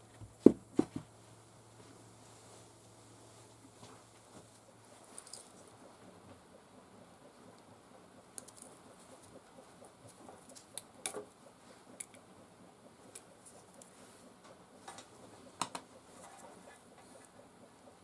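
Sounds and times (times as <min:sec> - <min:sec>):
small parts and tools clicking: 0:05.1 - 0:05.8, 0:07.5 - 0:09.4.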